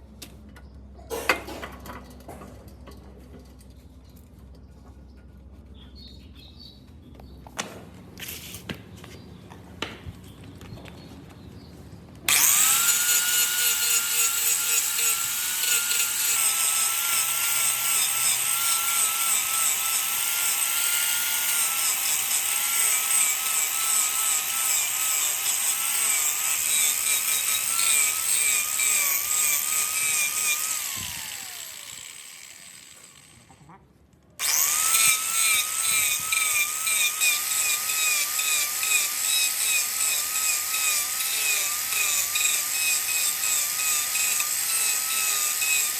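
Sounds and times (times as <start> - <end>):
wood lathe whining: 12.3 - 33.4, 34.4 - 45.9.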